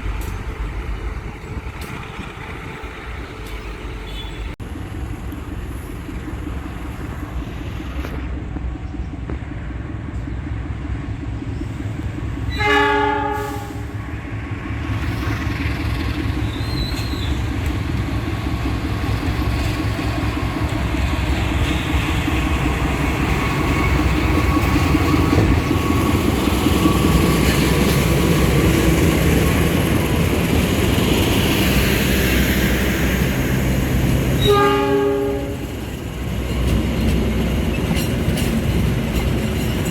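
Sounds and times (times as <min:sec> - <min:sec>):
train rumbling: 0:00.0 - 0:39.9
train horn: 0:12.5 - 0:14.0, 0:34.4 - 0:35.7.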